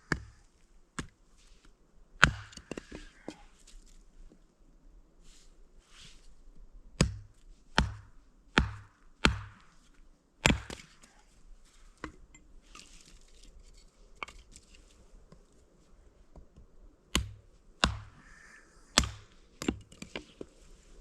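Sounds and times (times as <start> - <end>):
chopping blows with dull thuds: 2.2 - 3.0, 7.0 - 9.7, 10.4 - 10.9, 17.1 - 18.2, 19.0 - 20.1.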